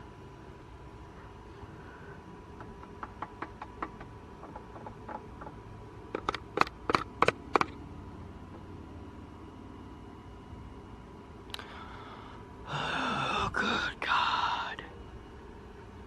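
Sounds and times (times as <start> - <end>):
sharp knocks from tapping: 2.6 - 7.8.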